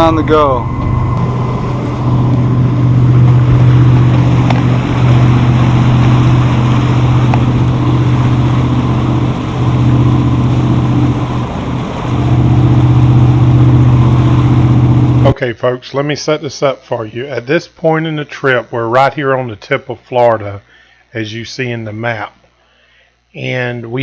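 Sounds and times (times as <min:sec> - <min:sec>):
boat engine humming: 0:00.0 - 0:15.4
water rushing past hull: 0:00.0 - 0:15.4.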